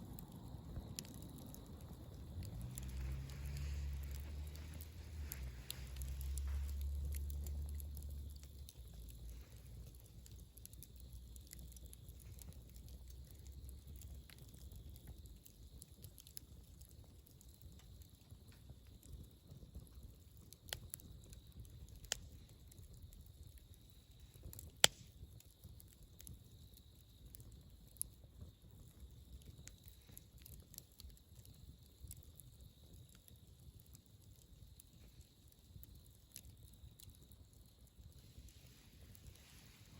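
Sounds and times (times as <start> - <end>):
low rumble: 0.0 - 11.3
campfire crackling and popping: 0.0 - 39.9.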